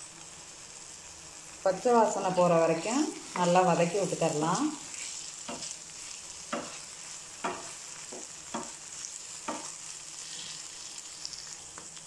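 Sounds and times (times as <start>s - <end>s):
onions sizzling in oil: 0.0s - 12.0s
wooden spatula strokes on pan: 2.0s - 12.0s.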